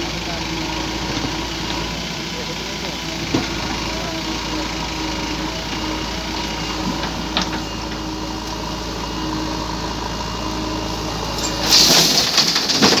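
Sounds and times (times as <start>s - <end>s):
backhoe engine running: 0.0s - 13.0s.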